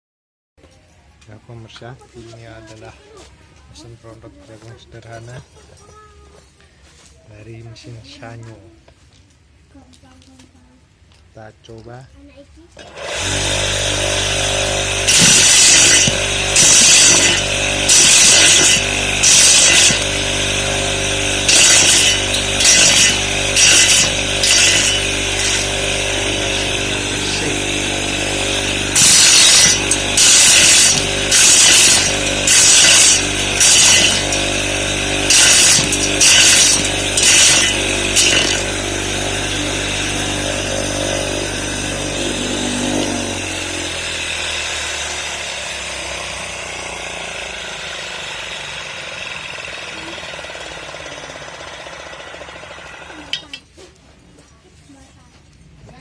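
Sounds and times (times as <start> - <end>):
motor humming: 12.8 - 53.6
corn sheller rattling: 14.2 - 40.2.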